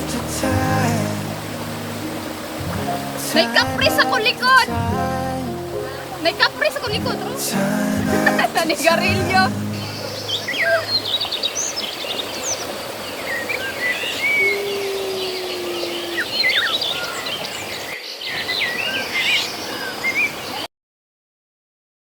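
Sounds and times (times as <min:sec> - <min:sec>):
steady hiss: 0:00.0 - 0:17.6
small birds chirping: 0:09.7 - 0:20.6.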